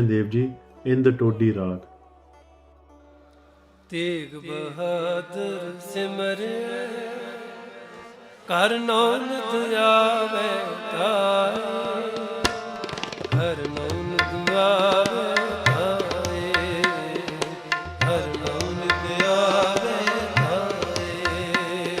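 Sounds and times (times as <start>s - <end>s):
tabla playing a steady rhythm: 11.7s - 22.0s.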